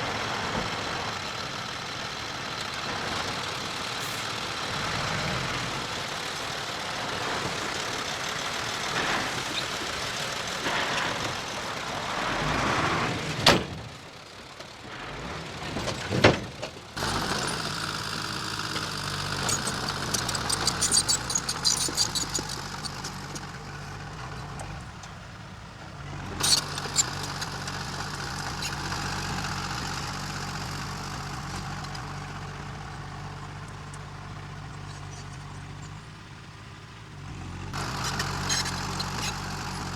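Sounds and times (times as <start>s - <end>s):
heavy machinery diesel engine: 0.0s - 39.9s
rapid clatter: 15.7s - 25.4s.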